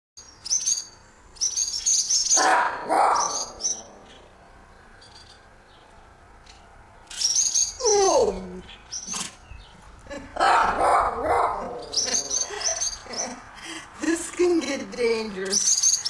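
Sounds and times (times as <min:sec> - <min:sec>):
swallows twittering alarm calls: 0:00.4 - 0:02.5, 0:03.1 - 0:04.2, 0:07.1 - 0:08.0, 0:11.8 - 0:13.4, 0:15.4 - 0:16.0.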